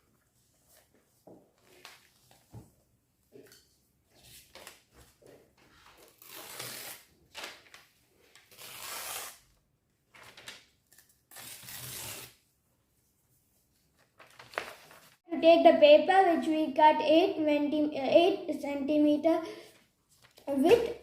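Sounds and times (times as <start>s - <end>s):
paper rustling: 0.4s - 2.6s, 10.1s - 12.3s, 13.6s - 15.2s, 19.7s - 21.0s.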